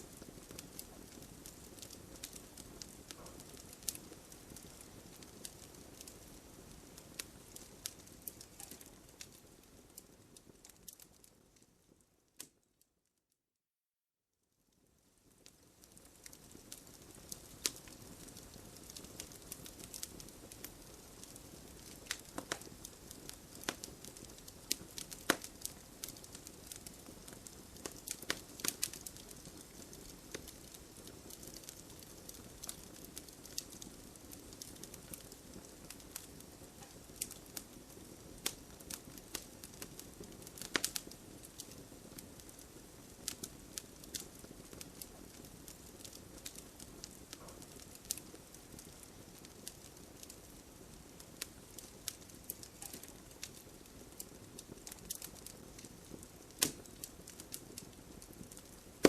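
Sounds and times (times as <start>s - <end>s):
burning wood crackling and popping: 0.0s - 12.6s, 15.0s - 59.0s
campfire flames rushing: 15.4s - 59.0s.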